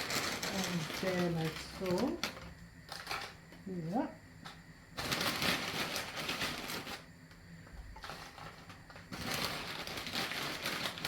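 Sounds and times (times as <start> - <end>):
tortilla crisps rustling: 0.0 - 3.4, 5.0 - 7.2, 7.9 - 11.0.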